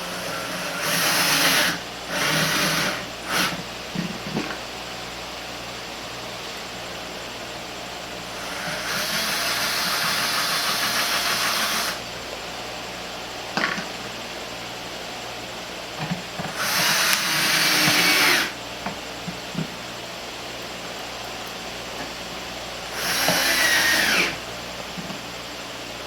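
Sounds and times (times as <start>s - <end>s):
electric screwdriver driving screws: 0.3s - 3.6s, 8.4s - 12.0s, 16.5s - 18.6s, 23.0s - 24.4s.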